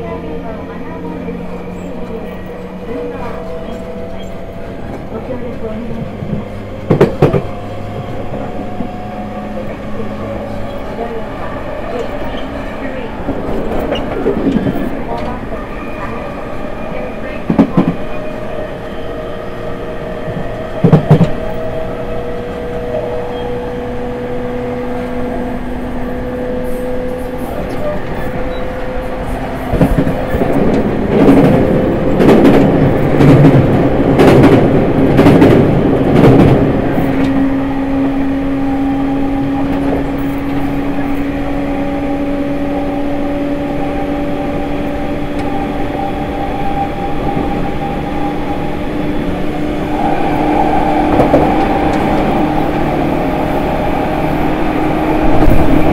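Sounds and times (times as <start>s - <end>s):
train wheel clatter and rattling: 1.7s - 9.0s, 11.9s - 15.4s, 26.8s - 37.6s, 39.3s - 54.2s
train motor whine: 37.1s - 55.9s.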